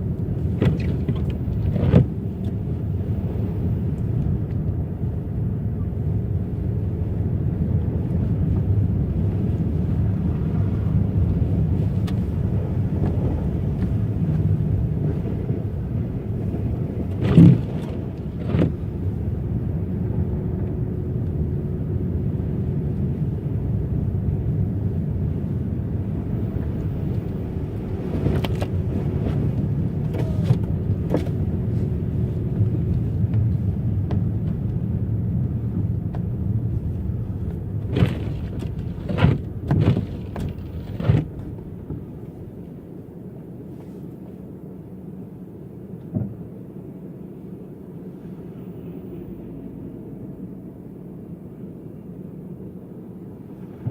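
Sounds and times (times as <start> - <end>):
car tyres rumbling on rough road: 0.0 - 53.9
car suspension knocks and bumps: 37.4 - 42.3.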